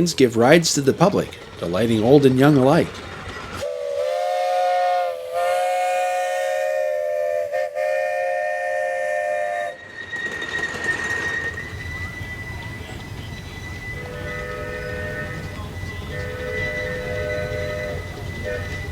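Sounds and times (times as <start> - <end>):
train rushing noise: 0.0 - 18.9
steam whistle blowing a chord: 3.6 - 9.8, 11.7 - 18.9.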